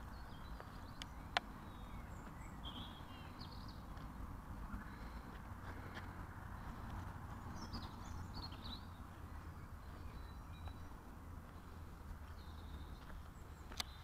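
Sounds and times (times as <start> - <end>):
steady low rumble: 0.0 - 14.0
faint bird chirps: 7.4 - 14.0.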